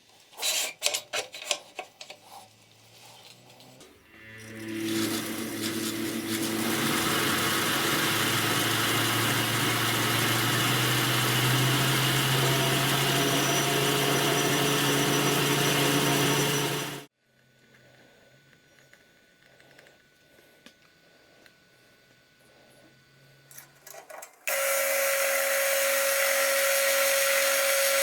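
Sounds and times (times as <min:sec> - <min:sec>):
electric power tool running: 0:03.9 - 0:17.1, 0:24.5 - 0:28.0.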